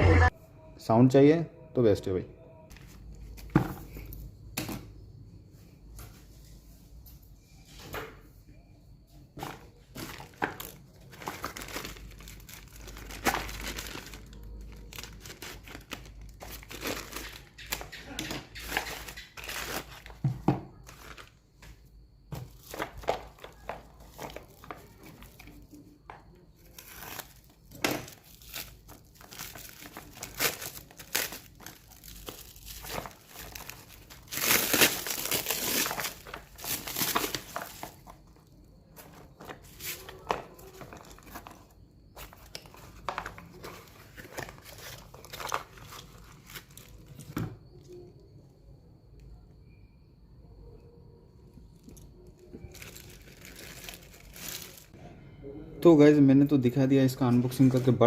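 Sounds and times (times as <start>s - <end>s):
packaging crinkling and tearing: 9.9s - 20.2s, 26.6s - 38.4s, 39.0s - 47.3s, 52.7s - 55.0s.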